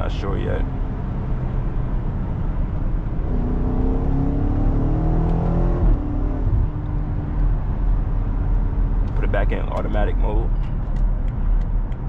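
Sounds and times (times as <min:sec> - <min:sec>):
road rumble: 0:00.0 - 0:12.0
car engine accelerating: 0:00.6 - 0:10.0.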